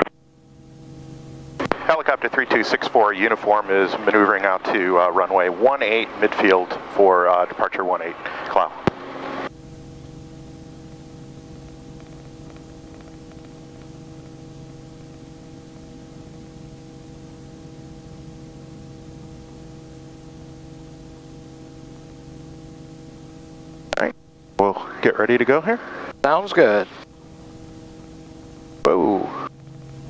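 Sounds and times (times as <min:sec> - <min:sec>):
helicopter hum over intercom: 0:01.7 - 0:10.4, 0:11.0 - 0:15.1.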